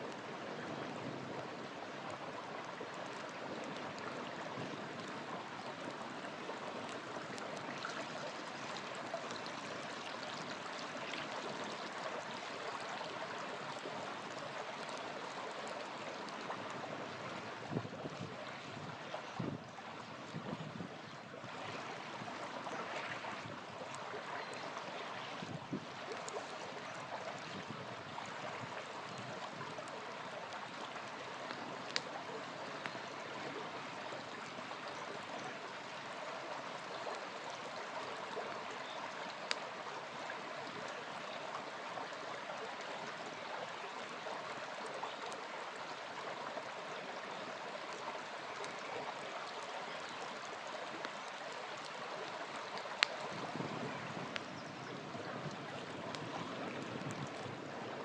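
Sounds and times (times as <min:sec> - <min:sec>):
small river flowing: 0:00.0 - 0:58.0
campfire popping and crackling: 0:01.3 - 0:18.8, 0:23.8 - 0:33.4, 0:38.5 - 0:40.9, 0:50.6 - 0:54.6, 0:55.4 - 0:57.7.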